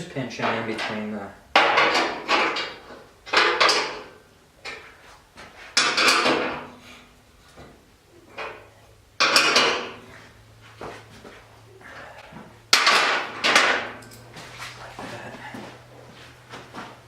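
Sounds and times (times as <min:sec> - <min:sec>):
metal clanking on a steel table: 0:09.2 - 0:10.0, 0:12.7 - 0:14.2.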